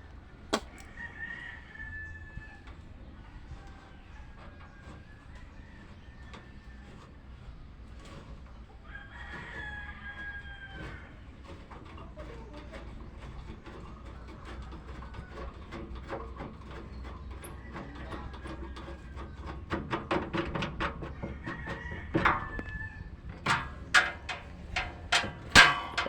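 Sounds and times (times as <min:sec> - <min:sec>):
hand tools knocking on engine: 0:23.4 - 0:26.0.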